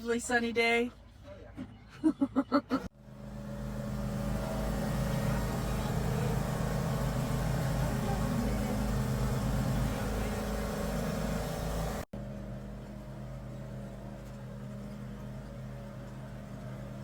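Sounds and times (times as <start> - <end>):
vehicle engine running: 2.9 - 17.0.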